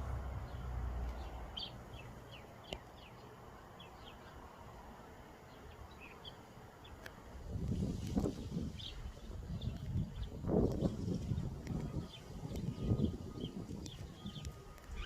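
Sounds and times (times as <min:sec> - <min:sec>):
sharp ticks: 0:11.5 - 0:15.0.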